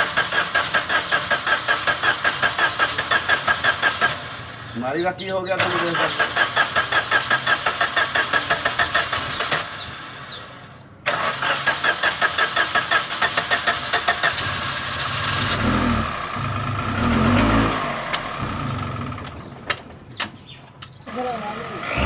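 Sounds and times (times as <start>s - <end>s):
car engine starter cranking: 0.0s - 4.7s, 5.6s - 10.4s, 11.0s - 20.5s
car engine running: 13.4s - 20.1s.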